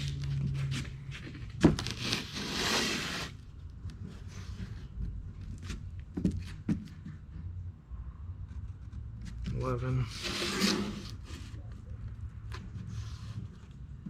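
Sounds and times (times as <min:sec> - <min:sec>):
scraping rasp: 0:01.8 - 0:03.4, 0:08.4 - 0:11.6.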